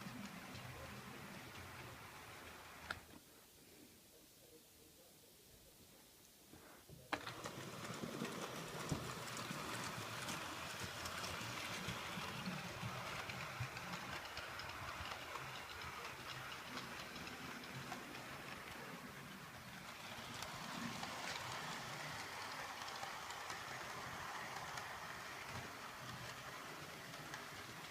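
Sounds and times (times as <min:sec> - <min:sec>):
train wheels clattering on rails: 0:07.2 - 0:27.9.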